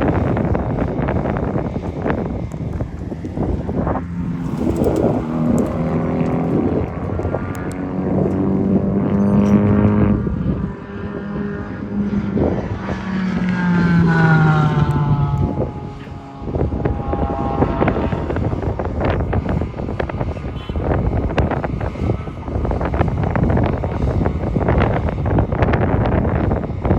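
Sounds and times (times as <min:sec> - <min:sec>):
race car engines passing: 0:00.9 - 0:20.0.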